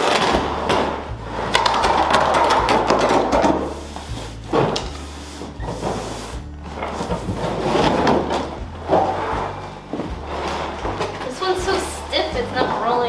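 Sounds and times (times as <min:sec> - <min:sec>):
carpet rustling and scraping: 0:02.8 - 0:13.0.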